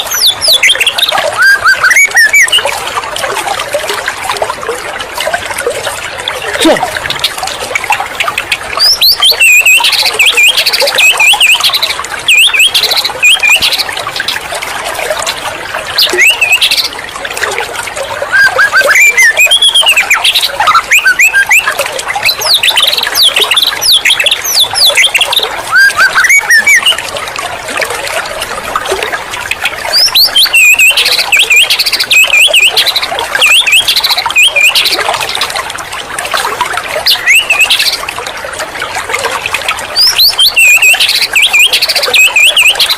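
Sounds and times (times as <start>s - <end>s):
songbird whistling and trilling: 0.1s - 2.7s, 8.8s - 13.9s, 16.0s - 16.9s, 18.2s - 27.0s, 29.9s - 34.9s, 37.1s - 37.8s, 40.0s - 42.9s.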